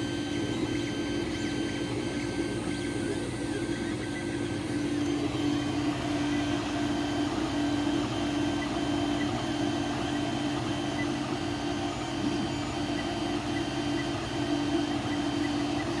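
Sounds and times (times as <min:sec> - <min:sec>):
printer fans humming: 0:00.0 - 0:16.0.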